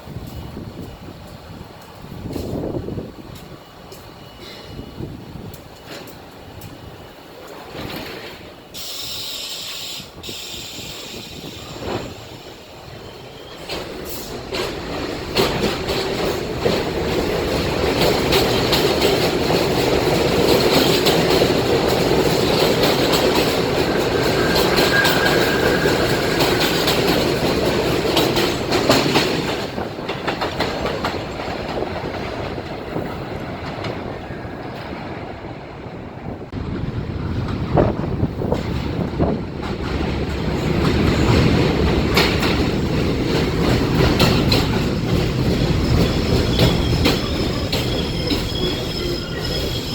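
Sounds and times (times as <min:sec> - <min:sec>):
train wheels clattering: 0:00.1 - 0:35.6, 0:37.3 - 0:49.9
train wheel squeal: 0:03.4 - 0:06.1, 0:08.6 - 0:14.5, 0:22.2 - 0:29.2, 0:44.2 - 0:49.9.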